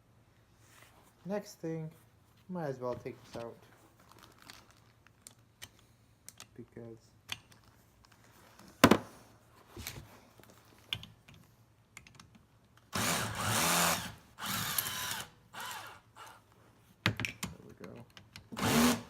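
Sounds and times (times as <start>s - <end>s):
power drill motor: 12.9s - 16.4s, 18.5s - 19.0s.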